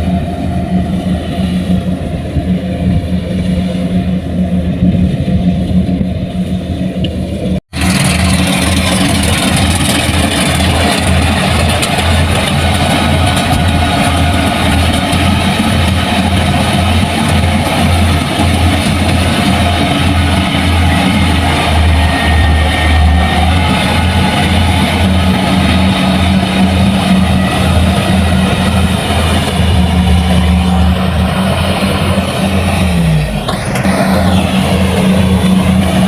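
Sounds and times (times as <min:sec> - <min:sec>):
diesel engine running under load: 0:00.0 - 0:36.0.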